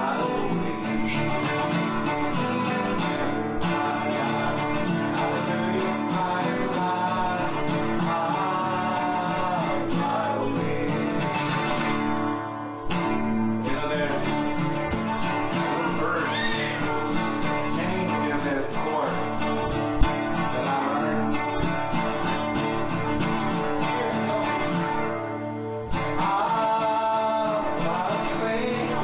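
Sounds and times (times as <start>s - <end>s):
acoustic guitar strumming: 0.0s - 29.0s
person singing: 0.0s - 29.0s.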